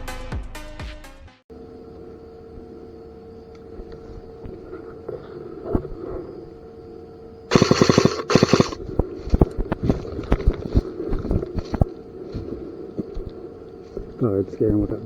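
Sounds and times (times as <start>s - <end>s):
airsoft gun full-auto bursts: 7.5s - 9.4s
sharp clicks: 7.5s - 12.0s.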